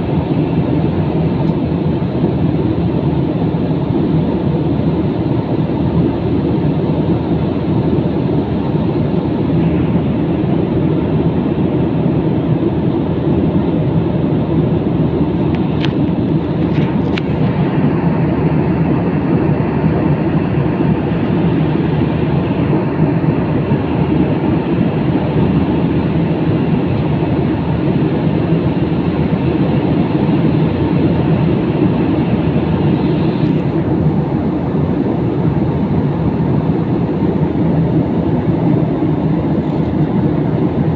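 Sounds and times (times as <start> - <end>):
airliner cabin noise: 0.0 - 40.9.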